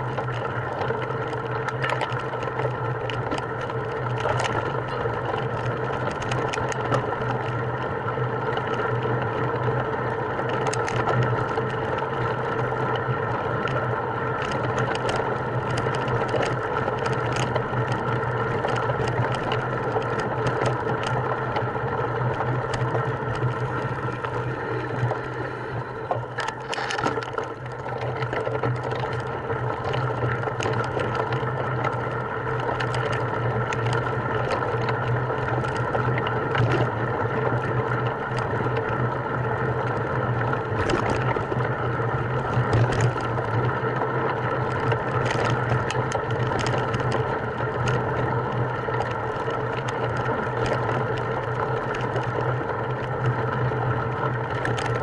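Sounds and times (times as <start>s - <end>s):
small motor running: 0.0s - 55.0s
clicks and rattles: 0.1s - 7.6s, 10.5s - 12.4s, 14.4s - 25.1s, 26.0s - 36.9s, 40.7s - 41.7s, 42.4s - 43.6s, 44.3s - 48.3s, 54.4s - 55.0s.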